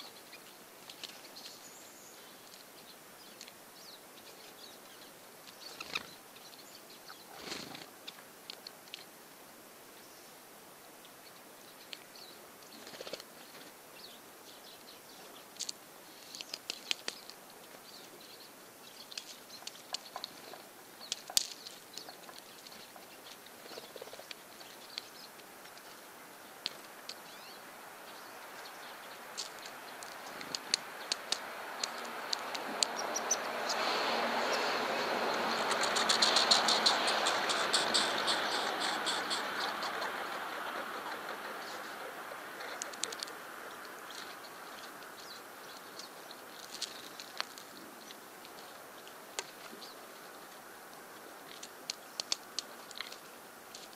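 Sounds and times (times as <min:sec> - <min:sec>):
woodpecker calls: 0:26.7 - 0:48.8
passing vehicle rumble: 0:30.8 - 0:44.5.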